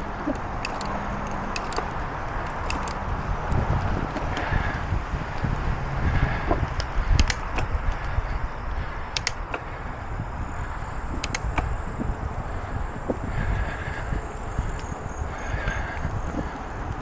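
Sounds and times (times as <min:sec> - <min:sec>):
bicycle tyre rumble: 0:00.0 - 0:17.0
wind buffeting microphone: 0:00.0 - 0:17.0
sharp double click: 0:07.2 - 0:07.7, 0:09.2 - 0:09.6.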